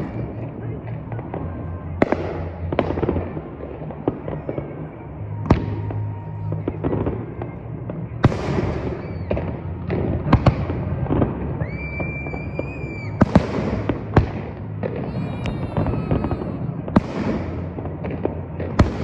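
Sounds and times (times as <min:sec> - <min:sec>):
fireworks bangs: 0:00.0 - 0:19.0
fireworks crackling: 0:00.0 - 0:19.0
high steady whistle: 0:11.6 - 0:13.2, 0:15.1 - 0:16.8.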